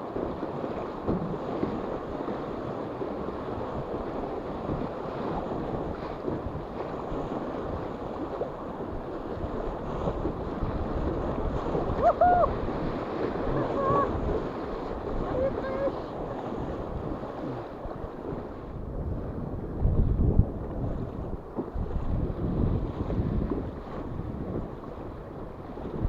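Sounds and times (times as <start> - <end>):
wind on microphone: 0.0 - 26.0
river water rushing: 5.9 - 18.5.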